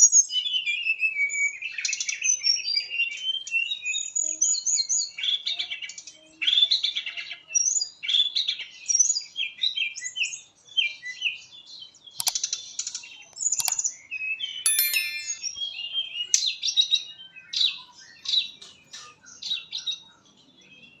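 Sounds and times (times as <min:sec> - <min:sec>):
sharp clicks: 0:14.7 - 0:15.4.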